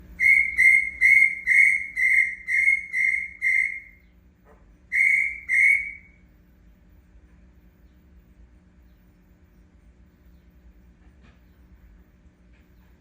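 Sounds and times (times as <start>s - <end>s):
cricket-like chirping: 0.2s - 4.0s, 4.9s - 6.2s.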